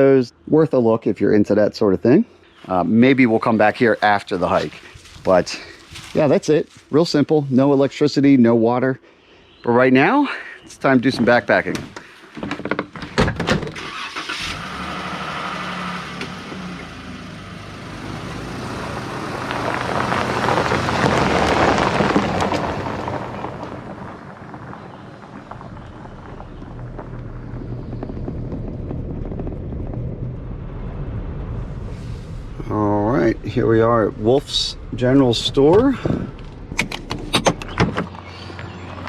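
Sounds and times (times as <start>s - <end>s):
car engine and road noise: 10.8s - 39.0s.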